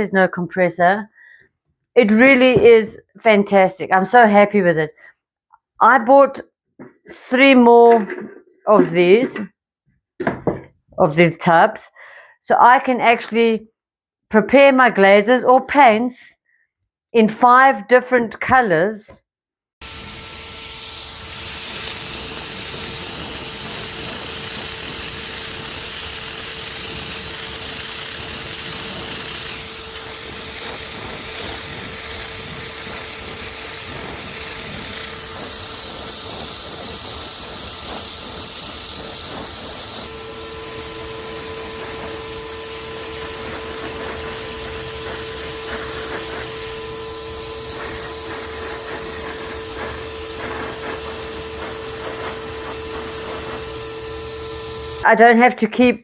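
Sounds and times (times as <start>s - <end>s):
hiss of air and spray: 19.8s - 55.1s
sprayer motor whine: 19.8s - 55.1s.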